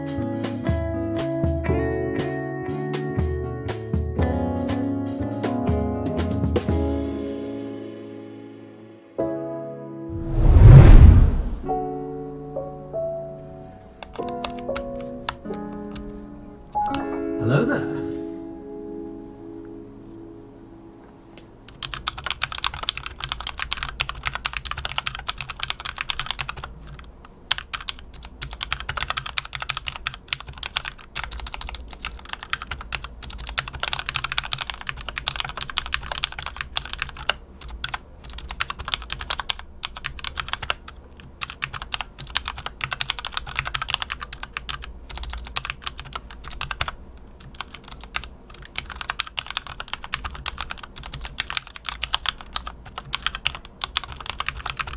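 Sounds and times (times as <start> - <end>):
mechanical keyboard typing: 14.0 - 17.0, 21.7 - 54.9.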